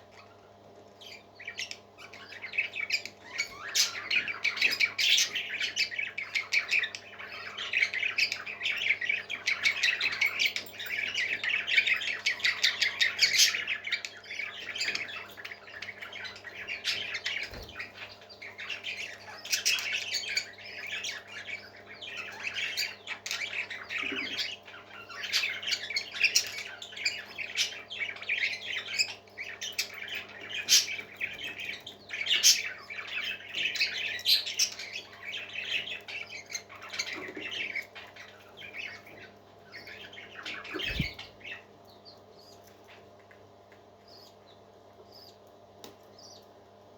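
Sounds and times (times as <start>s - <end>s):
baby parrots squawking: 1.1s - 8.6s, 39.8s - 41.6s
steady low hum: 34.8s - 46.9s.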